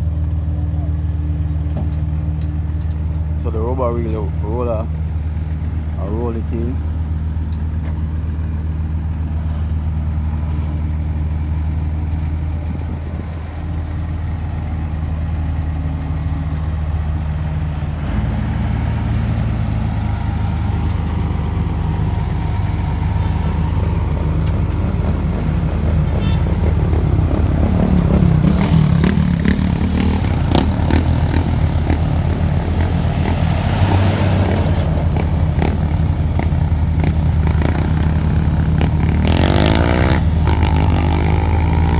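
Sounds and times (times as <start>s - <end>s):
diesel machinery engine drone: 0.0s - 41.9s
machinery clatter: 17.8s - 41.9s.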